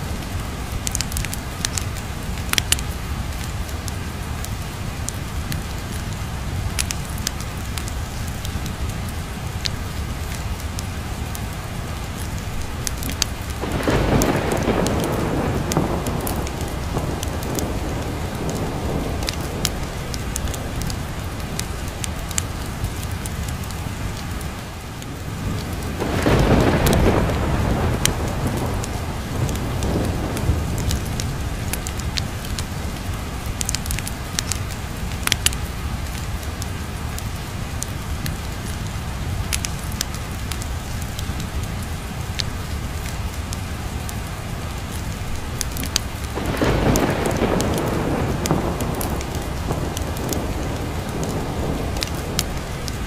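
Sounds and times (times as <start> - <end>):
steady rain: 0.0 - 53.0
pops and crackles: 0.8 - 4.0, 33.5 - 36.2, 45.6 - 53.0
thunder rolling: 13.0 - 22.3, 25.2 - 34.5, 45.8 - 53.0.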